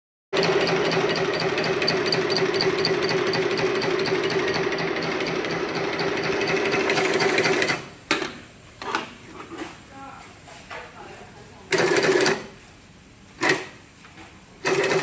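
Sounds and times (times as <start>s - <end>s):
sewing machine stitching: 0.4s - 7.9s, 11.7s - 12.5s, 13.4s - 13.8s, 14.6s - 15.0s.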